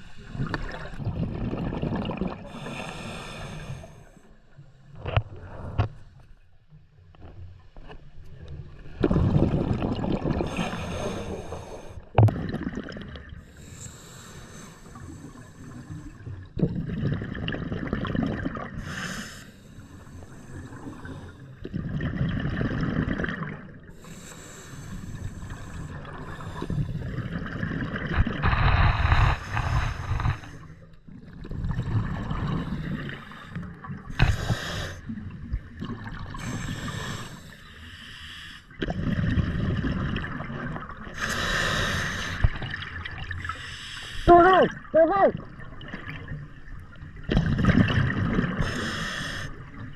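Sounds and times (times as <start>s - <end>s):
exhaled bubbles rushing: 0.0s - 2.7s, 8.9s - 11.0s, 12.2s - 13.4s, 16.1s - 18.8s, 21.7s - 23.8s, 25.4s - 37.1s, 38.8s - 41.3s, 44.6s - 49.9s
regulator inhale hiss: 13.5s - 16.0s, 23.9s - 27.1s, 28.5s - 30.8s, 32.7s - 35.1s, 36.4s - 38.7s, 41.2s - 42.5s, 43.5s - 44.3s, 48.6s - 49.8s.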